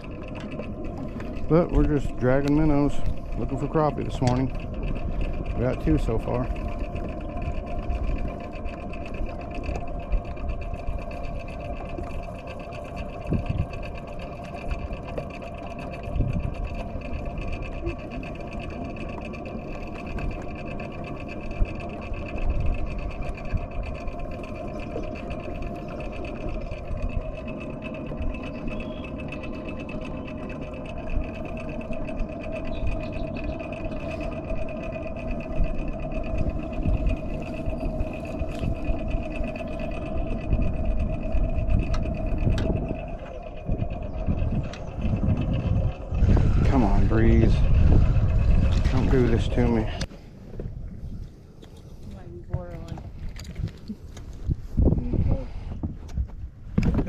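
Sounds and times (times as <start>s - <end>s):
boat motor whirring: 0.0s - 57.0s.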